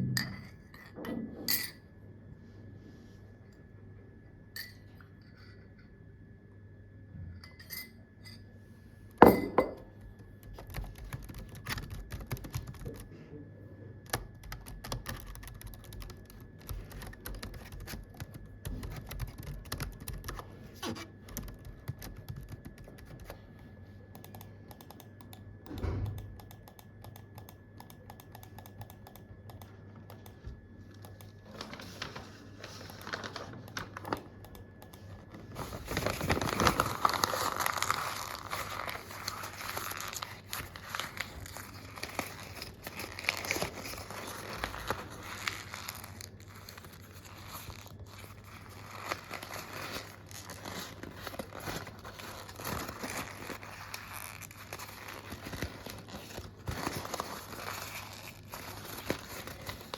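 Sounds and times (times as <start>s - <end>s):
computer keyboard typing: 10.0s - 13.1s, 14.0s - 23.5s, 24.1s - 30.4s, 31.0s - 31.4s, 32.8s - 59.9s.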